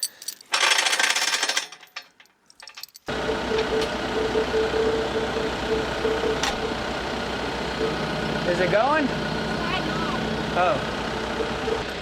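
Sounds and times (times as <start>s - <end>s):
tractor engine running: 3.1s - 12.0s.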